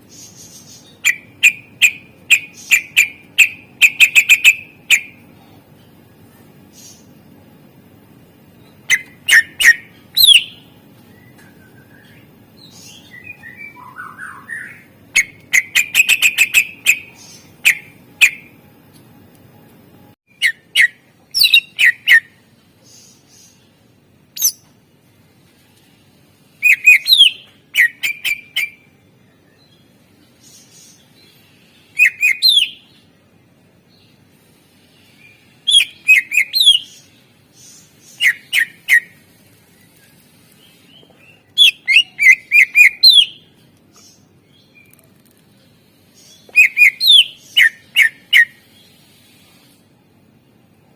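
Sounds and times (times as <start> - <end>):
soft bird twittering: 8.6 - 18.6, 34.8 - 45.4
bird whistling loud sharp notes: 8.9 - 10.6, 41.6 - 43.4.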